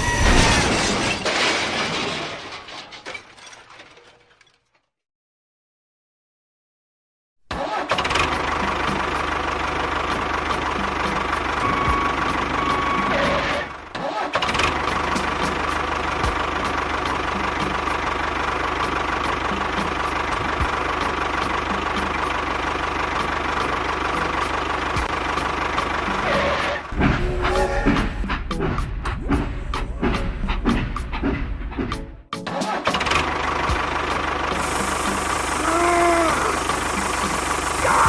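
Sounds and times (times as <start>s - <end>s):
small engine running: 33.1s - 38.0s.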